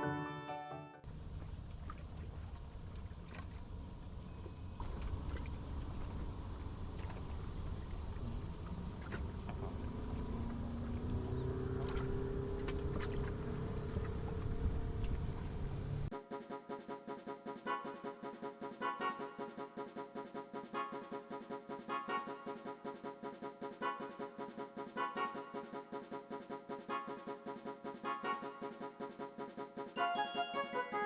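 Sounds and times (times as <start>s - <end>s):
wind: 1.0s - 16.1s
water: 1.0s - 25.7s
faint boat engine drone: 1.0s - 29.0s.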